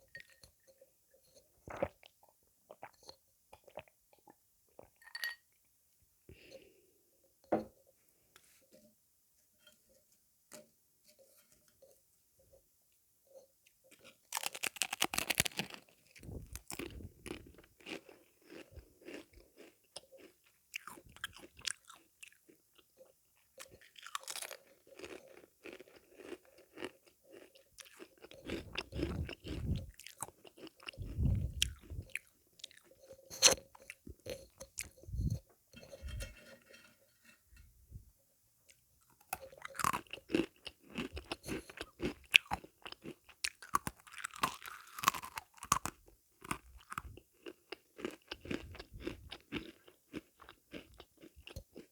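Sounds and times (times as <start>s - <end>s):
person crunching and chewing: 13.9s - 22.5s, 23.4s - 35.3s, 38.7s - 51.9s
crunchy bites: 14.3s - 17.5s.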